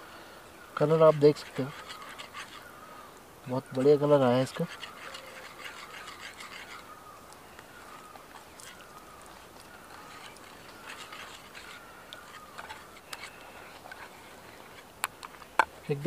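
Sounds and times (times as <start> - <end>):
faint wavering bird calls: 0.0 - 16.0
steady low hiss: 0.0 - 16.0.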